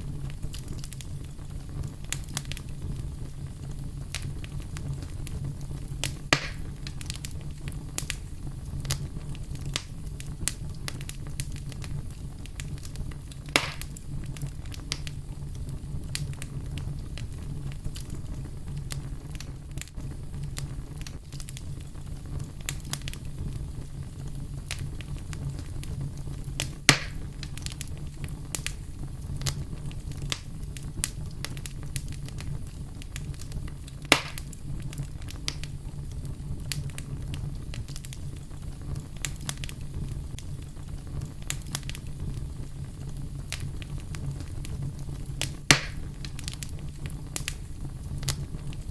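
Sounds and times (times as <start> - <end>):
fire pops: 0.0 - 48.9
wood fire crackling: 0.0 - 48.9.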